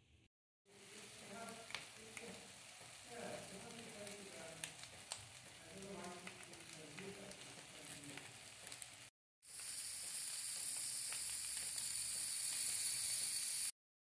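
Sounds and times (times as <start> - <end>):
food sizzling in a pan: 0.7 - 13.8.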